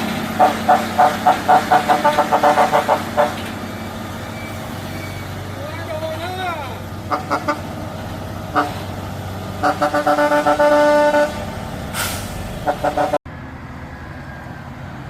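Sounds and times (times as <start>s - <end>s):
heavy truck engine running: 0.0s - 15.0s
vehicle horn tooting: 0.4s - 3.4s, 7.1s - 7.7s, 8.5s - 8.9s, 9.6s - 11.5s, 12.6s - 13.2s
short hiss: 11.9s - 12.5s.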